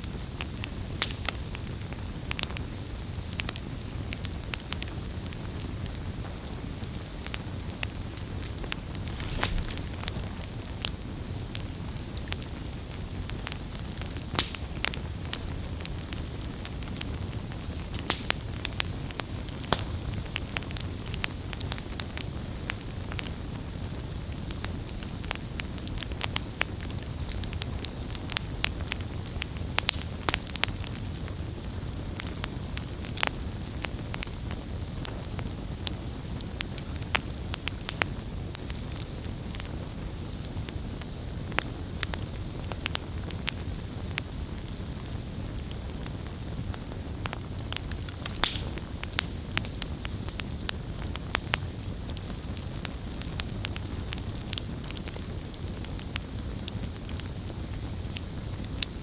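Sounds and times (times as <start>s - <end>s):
campfire crackling and popping: 0.0s - 59.0s
low rush of burning: 7.8s - 12.4s, 44.1s - 58.8s.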